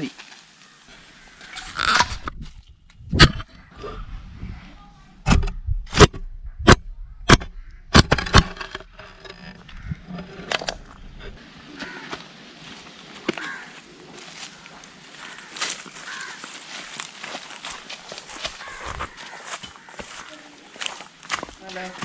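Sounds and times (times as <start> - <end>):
scraping: 0.9 - 12.3
digging tool striking clay: 1.7 - 3.5, 5.2 - 12.2.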